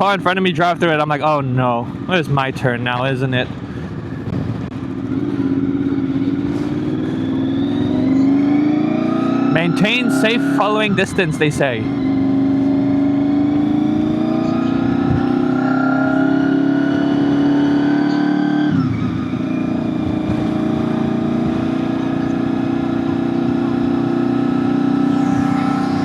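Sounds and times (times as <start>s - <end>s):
motorcycle engine running: 1.8s - 26.0s.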